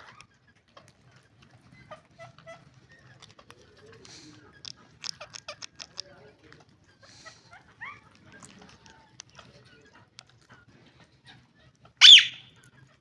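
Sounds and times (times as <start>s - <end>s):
parrot loud sharp screech: 12.0s - 12.5s
parrot short calls: 12.0s - 12.5s
parrots chirping: 12.0s - 12.6s.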